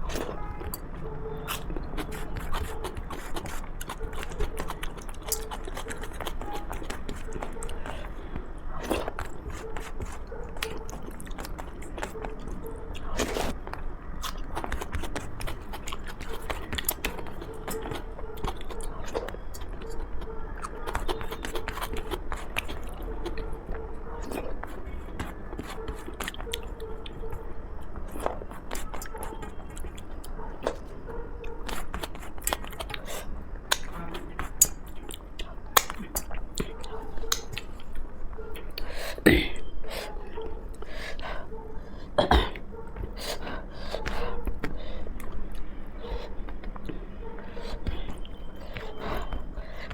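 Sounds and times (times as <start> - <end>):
chewing with wet mouth clicks: 0.0 - 41.3, 42.4 - 49.9
wet mouth clicks and smacks: 33.7 - 36.7, 37.3 - 37.9.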